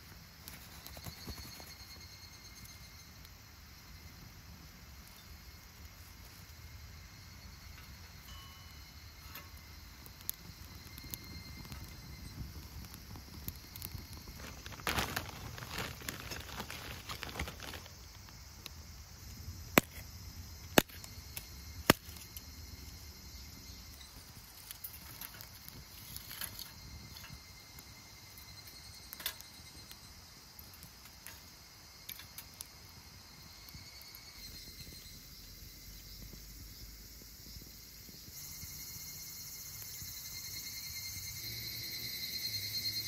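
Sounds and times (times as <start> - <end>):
insects chirring: 0.0 - 43.0
rustling and patter: 0.4 - 2.1, 10.1 - 18.4.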